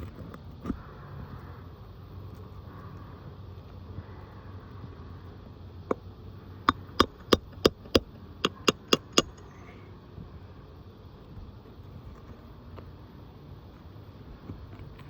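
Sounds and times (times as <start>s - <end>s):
hammer blows: 6.7s - 9.5s.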